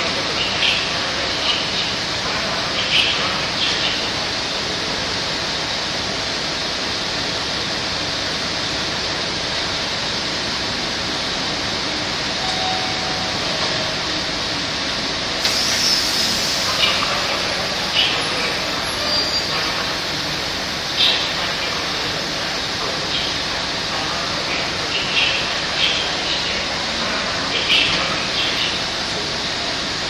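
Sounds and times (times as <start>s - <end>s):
train wheels on rails: 3.4s - 24.4s.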